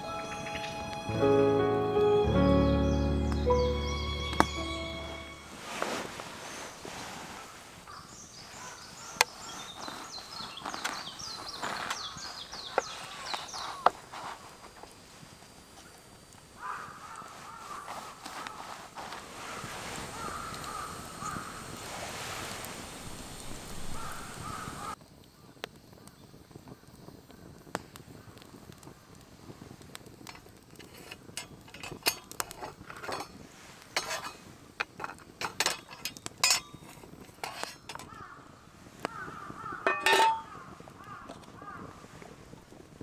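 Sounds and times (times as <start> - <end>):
wind: 0.0 - 43.0
crow cawing: 16.6 - 18.6, 20.1 - 21.8, 23.8 - 25.0, 38.0 - 38.5, 39.1 - 42.0
metal cookware clinking: 30.8 - 33.4, 34.0 - 38.2, 39.8 - 40.5.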